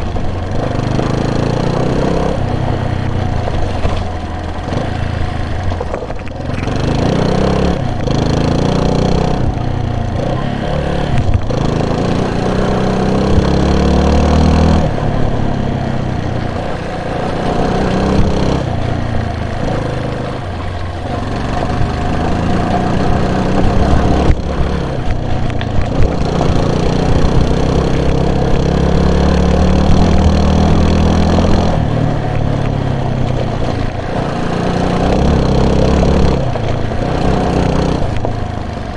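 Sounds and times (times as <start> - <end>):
vehicle engine revving: 0.0 - 38.9.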